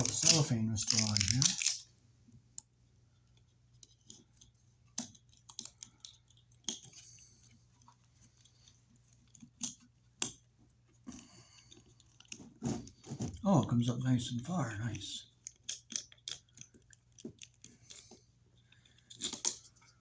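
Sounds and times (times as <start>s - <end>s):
plastic film rustling: 0.0s - 1.9s.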